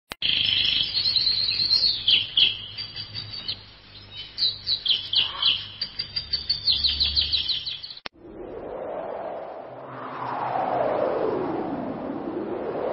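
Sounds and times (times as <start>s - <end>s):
birds chirping: 0.2s - 8.1s.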